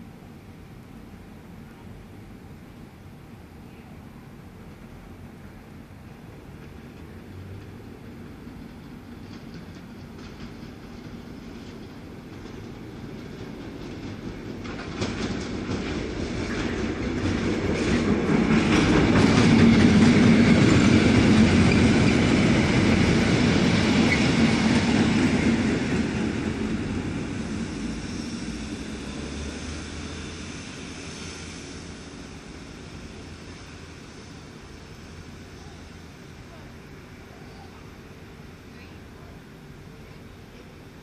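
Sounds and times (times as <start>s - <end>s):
train wheels clattering over joints: 6.6s - 28.6s.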